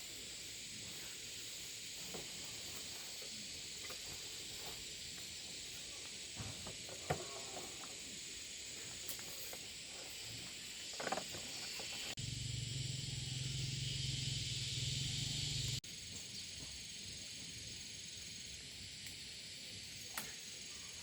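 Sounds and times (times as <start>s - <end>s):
steady high hiss: 0.0s - 21.0s.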